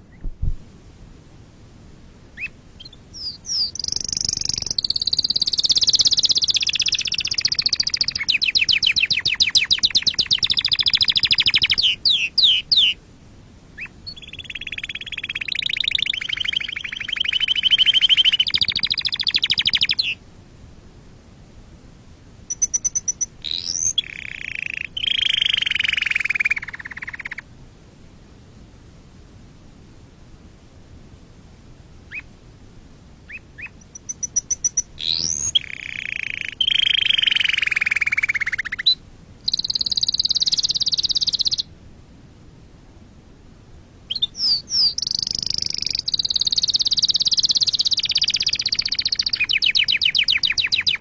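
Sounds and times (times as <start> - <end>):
canary singing: 2.4 - 13.0, 13.8 - 20.2, 22.5 - 27.4, 32.1 - 32.3, 33.3 - 41.7, 44.1 - 51.0.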